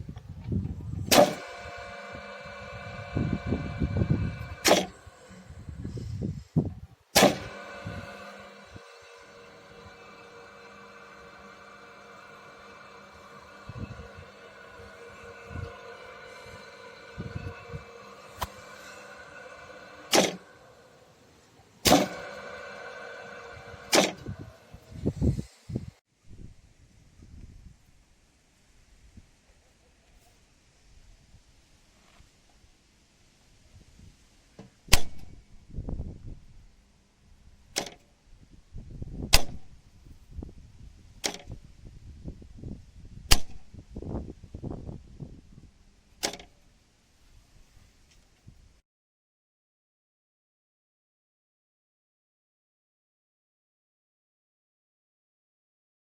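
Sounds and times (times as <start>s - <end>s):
coil humming: 0.6s - 25.8s
contactor clacking: 1.1s - 6.0s, 7.2s - 21.0s, 21.9s - 24.9s.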